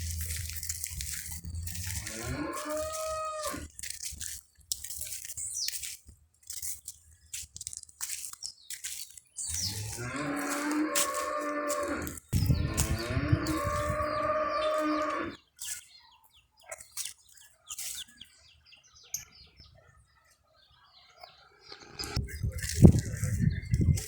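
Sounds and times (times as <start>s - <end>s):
cattle mooing: 1.5s - 3.7s, 9.7s - 15.4s.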